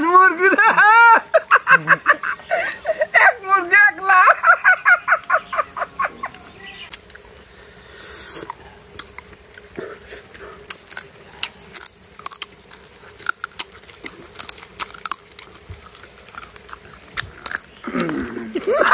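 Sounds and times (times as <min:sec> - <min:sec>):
wet chewing and smacking: 0:05.2 - 0:07.6, 0:08.3 - 0:18.9
short hiss: 0:07.6 - 0:08.6.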